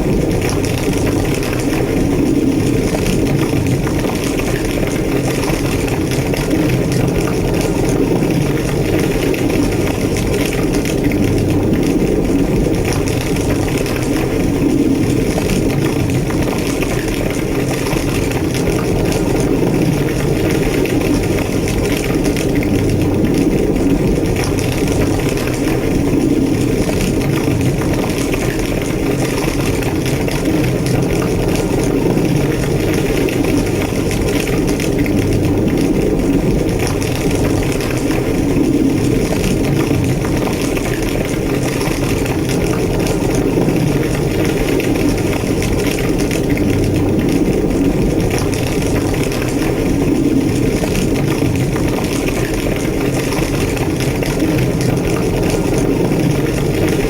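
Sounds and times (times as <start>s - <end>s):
building fire roaring and crackling: 0.0s - 57.0s.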